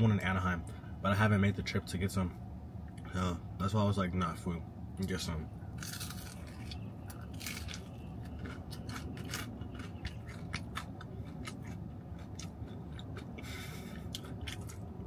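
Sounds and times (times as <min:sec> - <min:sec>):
steady low hum: 0:00.0 - 0:15.0
person chewing crispy food: 0:05.8 - 0:15.0.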